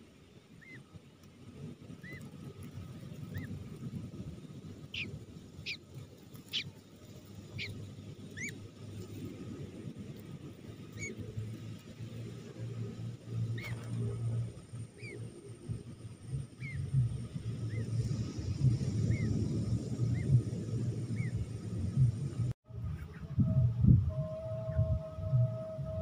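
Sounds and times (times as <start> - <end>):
low rumbling background: 0.0 - 26.0
bird chirping calls: 0.6 - 0.9, 4.9 - 6.8, 7.4 - 8.6, 10.9 - 11.3, 13.5 - 14.1, 15.0 - 15.3, 16.5 - 16.9, 18.9 - 19.4, 21.1 - 21.6.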